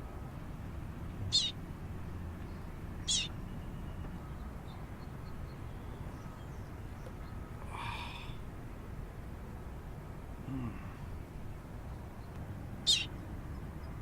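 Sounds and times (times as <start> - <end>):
baby bird begging calls: 1.3 - 1.6, 3.0 - 3.4, 12.8 - 13.1.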